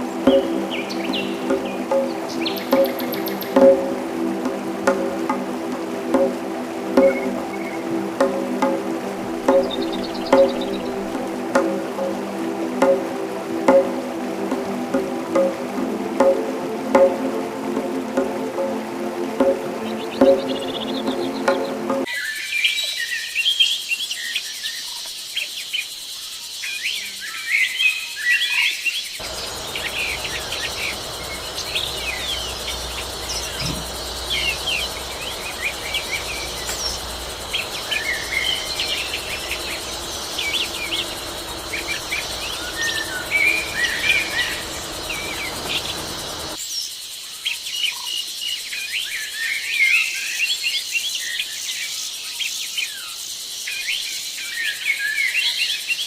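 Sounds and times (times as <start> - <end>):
birds chirping: 0.0 - 17.3, 18.1 - 22.1, 29.2 - 46.6
insect-like background noise: 0.0 - 56.0
low steady rumble: 29.2 - 46.6.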